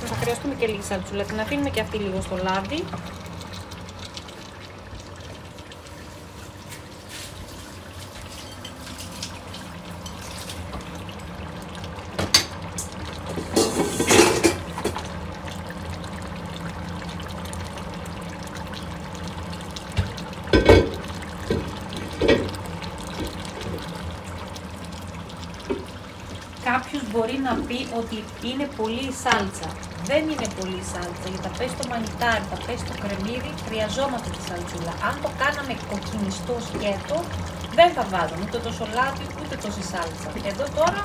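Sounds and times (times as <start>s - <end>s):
tomato sauce sizzling in oil: 0.0s - 41.0s
clatters and scrapes against pot: 6.7s - 10.7s, 13.3s - 15.0s.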